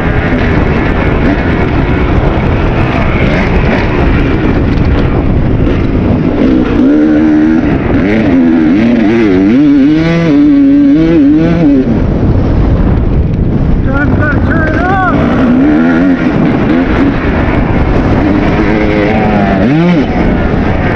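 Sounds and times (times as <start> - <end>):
dirt bike engine revving: 0.0 - 12.8, 14.0 - 20.9
ground noise: 0.0 - 20.9
wind noise: 0.0 - 20.9.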